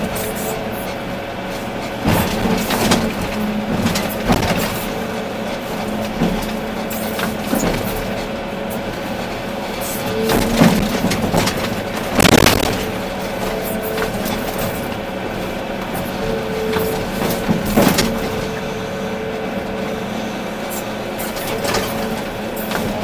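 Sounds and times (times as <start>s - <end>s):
excavator diesel engine running: 0.0s - 23.0s
bucket crunching on rock: 10.4s - 14.9s.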